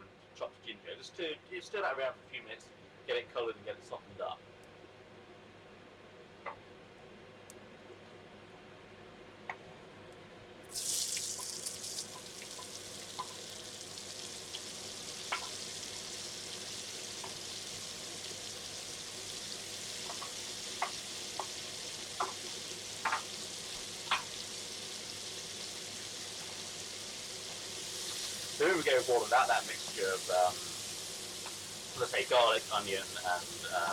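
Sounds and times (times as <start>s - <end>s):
onions sizzling in a frying pan: 10.7s - 33.9s
sharp pops and crackles: 24.0s - 24.4s.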